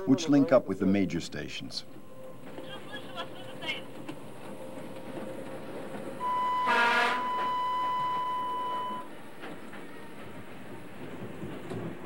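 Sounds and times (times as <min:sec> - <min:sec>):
train rumbling: 0:00.0 - 0:12.0
high steady tone: 0:06.2 - 0:09.1
train horn blast: 0:06.2 - 0:09.1.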